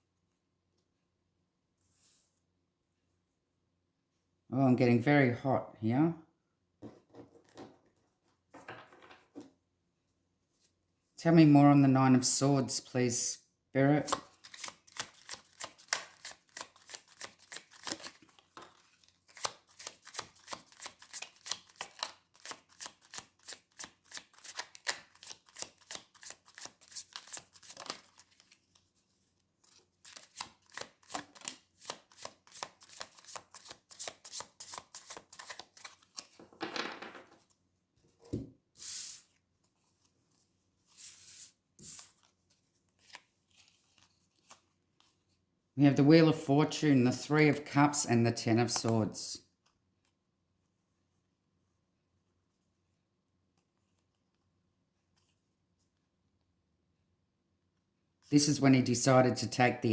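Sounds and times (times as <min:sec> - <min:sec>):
cards being shuffled: 0:14.0 - 0:28.6, 0:29.7 - 0:37.6
cards swishing: 0:38.8 - 0:39.4, 0:40.9 - 0:42.3.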